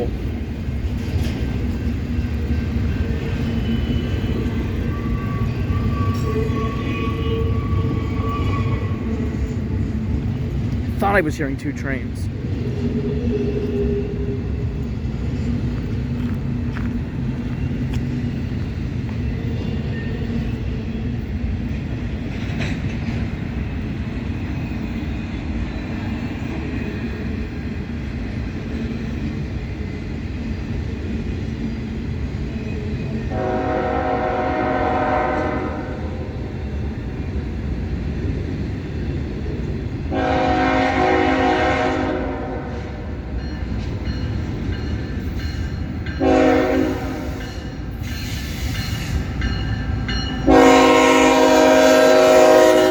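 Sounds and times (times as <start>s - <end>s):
freight train rumbling: 0.0s - 52.9s
locomotive air horn blasts: 33.3s - 36.1s, 40.1s - 42.9s, 46.2s - 47.4s, 50.4s - 52.9s.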